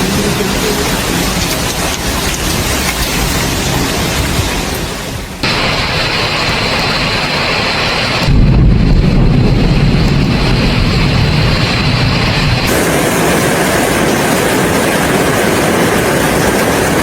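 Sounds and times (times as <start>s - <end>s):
wind and rain storm: 0.0s - 17.0s
wind buffeting microphone: 8.2s - 17.0s.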